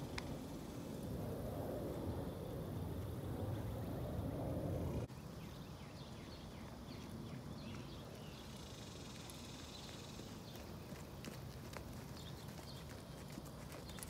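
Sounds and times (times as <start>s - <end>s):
low rumbling noise: 0.0s - 5.1s
horse hoofbeats on sand: 10.3s - 14.0s.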